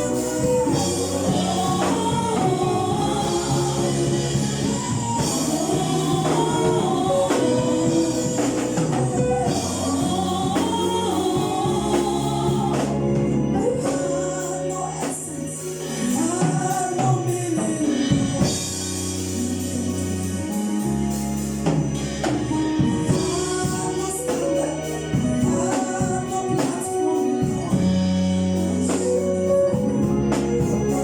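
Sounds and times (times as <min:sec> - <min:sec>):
choir singing with band: 0:00.0 - 0:31.0.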